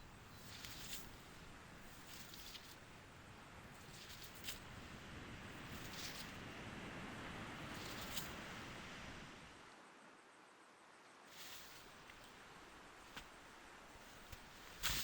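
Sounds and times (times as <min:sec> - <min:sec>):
faint steady hiss: 0:00.0 - 0:15.0
flippers scraping sand: 0:00.3 - 0:02.9, 0:13.0 - 0:15.0.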